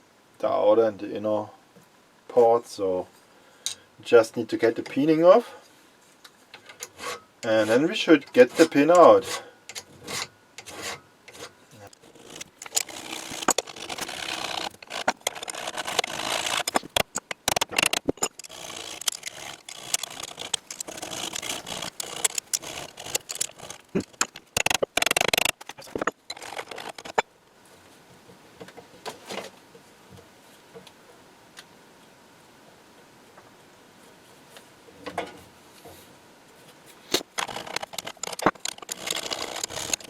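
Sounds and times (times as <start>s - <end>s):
hand tools scraping metal: 6.6s - 27.2s, 37.2s - 40.0s.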